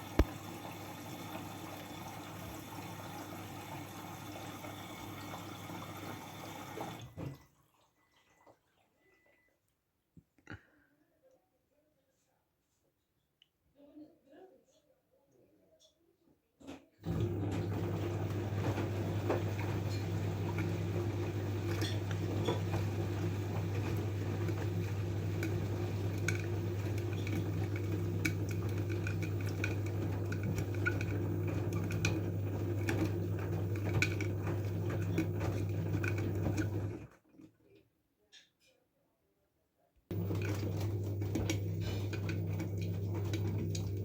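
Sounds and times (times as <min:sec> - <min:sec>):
washing machine drain pump humming: 0:00.0 - 0:07.5, 0:17.0 - 0:37.1, 0:40.1 - 0:44.0.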